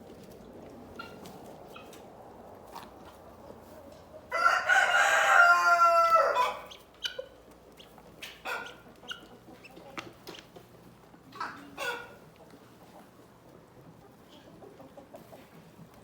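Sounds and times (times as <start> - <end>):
chickens clucking: 0.0 - 16.0
rooster crowing: 4.3 - 6.7.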